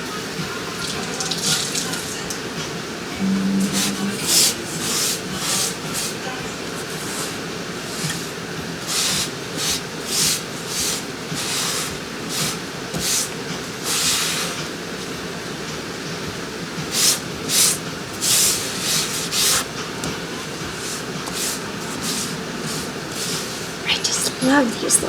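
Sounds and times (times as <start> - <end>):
scouring pad scrubbing: 0.7 - 2.2, 3.5 - 14.8, 16.9 - 23.8.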